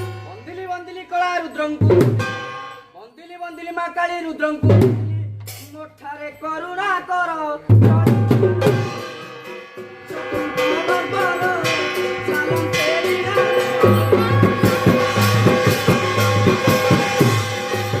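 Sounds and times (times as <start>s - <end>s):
drums: 0.0s - 2.8s, 4.5s - 18.0s
rattling percussion: 0.0s - 18.0s
sustained melody tones: 7.6s - 18.0s.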